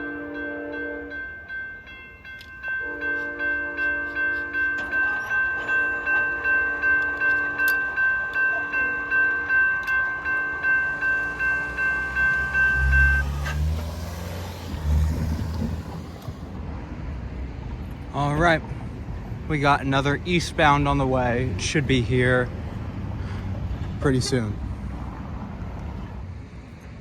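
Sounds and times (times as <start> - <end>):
railroad crossing bell ringing: 0.0 - 16.3
passing vehicle engine rumble: 2.1 - 27.0.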